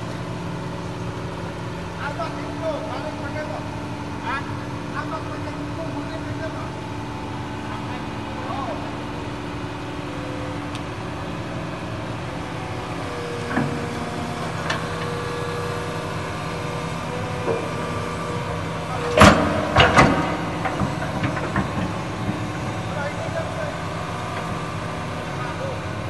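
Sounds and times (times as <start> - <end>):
excavator engine running: 0.0 - 26.0
held whine: 0.0 - 26.0
sharp knocks: 19.0 - 22.8.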